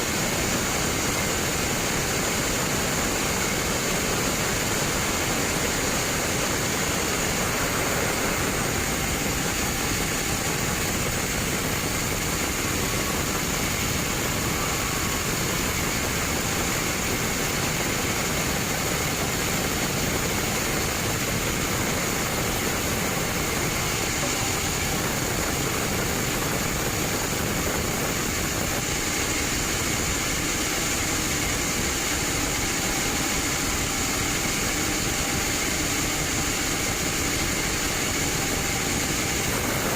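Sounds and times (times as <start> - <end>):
band sawmill running: 0.0 - 39.9
steady high whine: 0.0 - 39.9.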